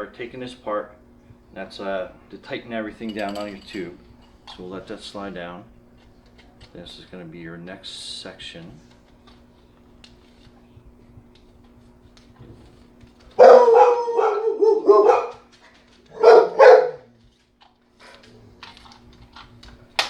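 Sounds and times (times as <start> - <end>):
dog barking: 13.4 - 15.4, 16.1 - 17.1.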